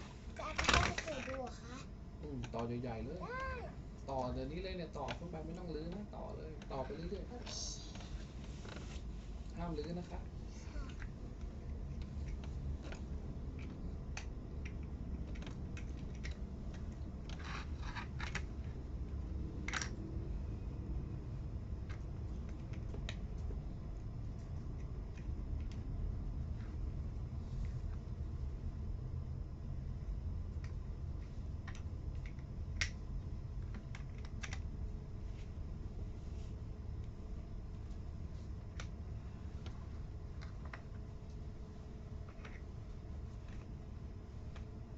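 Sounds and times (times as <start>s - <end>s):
plastic toy blocks clicking: 0.6s - 1.5s, 13.6s - 18.8s, 33.6s - 34.6s.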